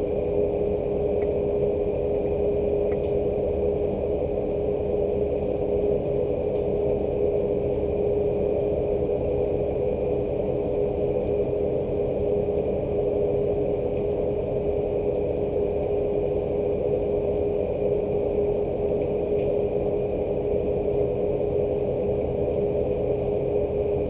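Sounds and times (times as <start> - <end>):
constant machine hum: 0.0 - 24.0
faint drip ticks: 0.3 - 1.4, 2.2 - 3.2, 18.7 - 19.6.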